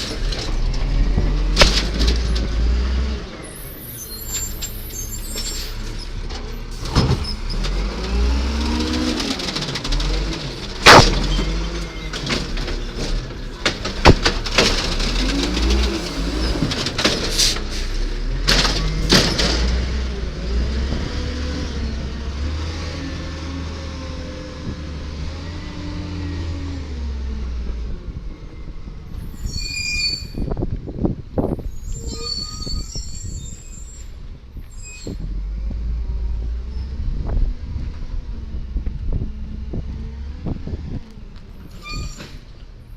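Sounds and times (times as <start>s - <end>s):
metallic bangs of cart dumping: 0.0s - 2.6s, 8.6s - 20.1s
diesel truck engine revving: 0.0s - 29.1s, 35.1s - 41.7s.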